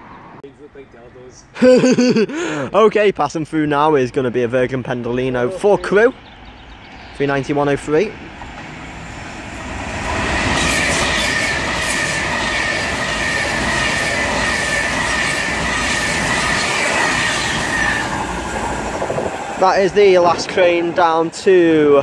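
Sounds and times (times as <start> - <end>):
electric train passing at speed: 6.2 - 22.0.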